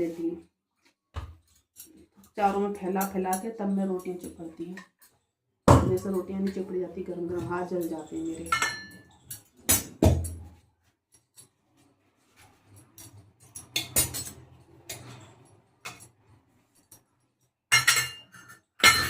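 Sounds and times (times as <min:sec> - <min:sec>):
metal utensils clinking: 0:01.4 - 0:05.2, 0:05.9 - 0:10.5, 0:12.6 - 0:19.0.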